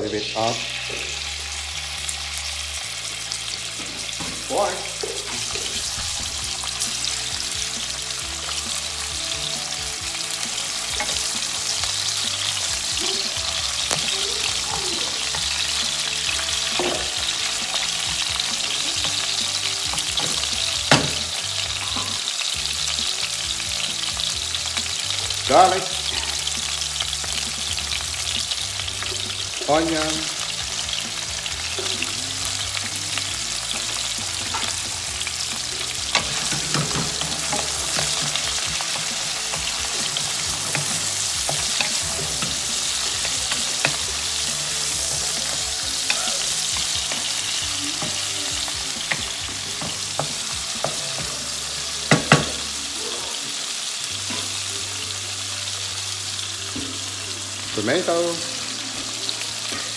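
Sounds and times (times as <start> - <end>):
meat sizzling in oil: 0.0 - 59.9
spatula scraping and tapping pan: 15.2 - 17.2, 33.8 - 48.4, 49.0 - 51.4.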